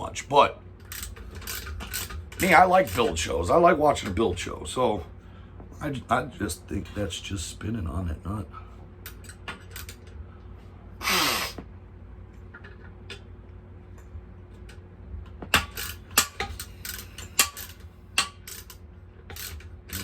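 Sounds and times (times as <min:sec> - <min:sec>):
breathy burst of noise: 0:11.0 - 0:11.6.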